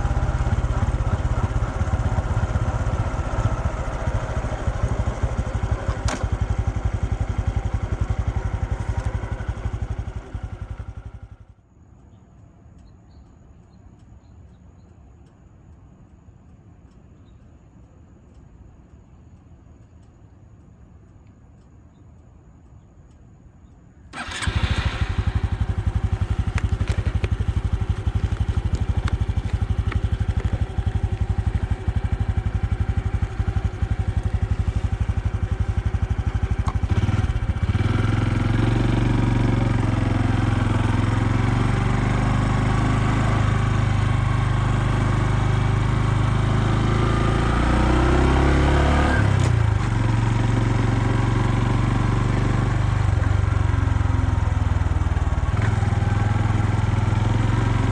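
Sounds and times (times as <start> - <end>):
motorcycle engine running: 0.0 - 11.6, 24.2 - 57.9.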